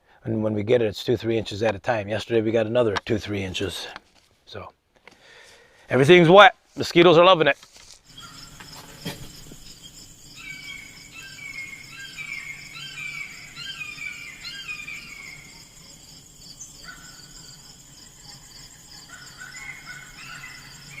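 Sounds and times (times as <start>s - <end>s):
insects chorus: 5.2s - 21.0s
bird whistling downward notes: 10.4s - 15.6s.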